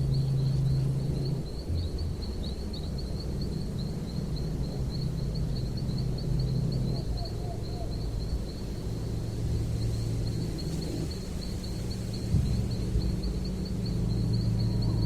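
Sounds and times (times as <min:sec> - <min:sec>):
steady low rumble: 0:07.7 - 0:15.0.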